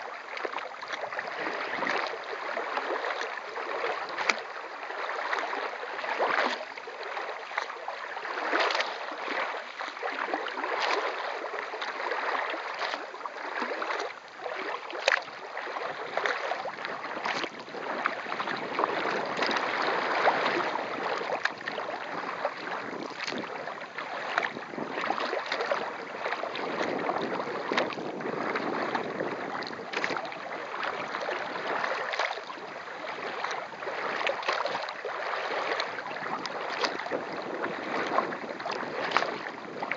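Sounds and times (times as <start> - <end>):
paddle splashes: 0.0 - 39.9
water rushing against kayak: 0.0 - 39.9
wind on microphone: 15.8 - 39.9.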